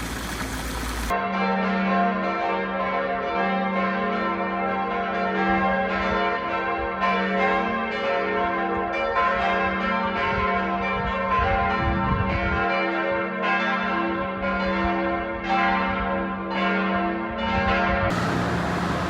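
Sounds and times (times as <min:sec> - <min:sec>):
large bells pealing: 0:18.1 - 0:19.0.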